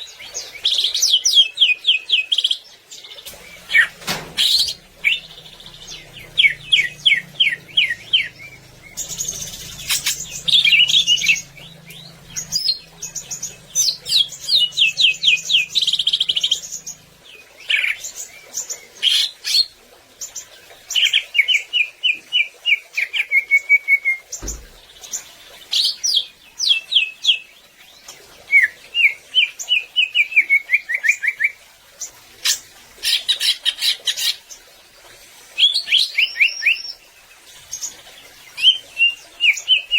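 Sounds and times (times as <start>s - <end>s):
bird singing rapid chirps: 3.2s - 19.7s
faint low hum: 3.3s - 18.6s
soft thump: 24.4s - 25.0s.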